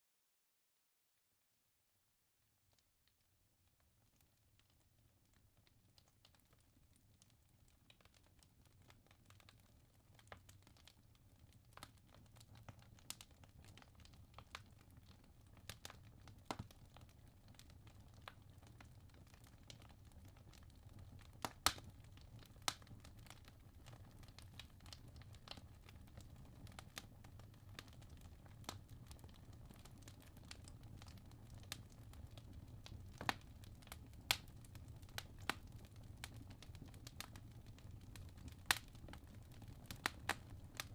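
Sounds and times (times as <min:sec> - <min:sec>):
logs crackling and popping: 0:04.1 - 0:40.9
low rumble of flames: 0:11.5 - 0:40.9.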